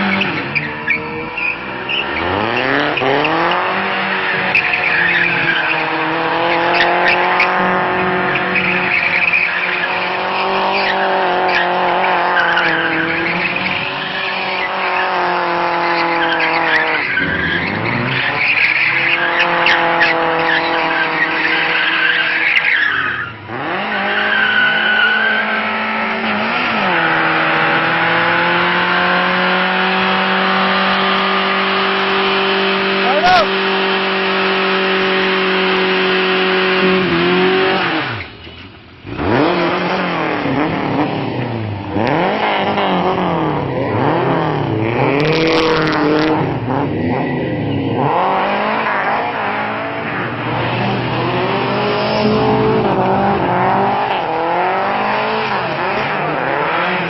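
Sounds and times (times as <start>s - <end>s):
car engine revving high: 0.0s - 38.4s, 39.0s - 57.0s
tyres squealing: 0.1s - 25.6s.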